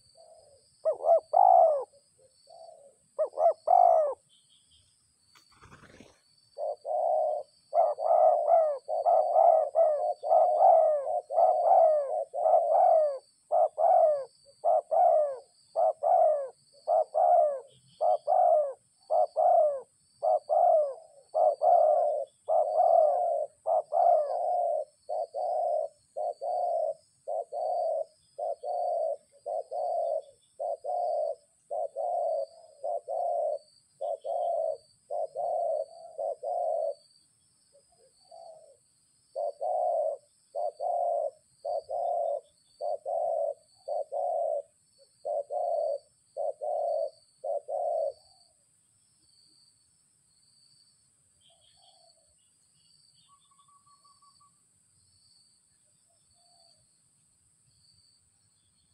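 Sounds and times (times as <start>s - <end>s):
dove cooing: 0.0s - 4.2s, 5.5s - 37.1s, 37.8s - 48.6s.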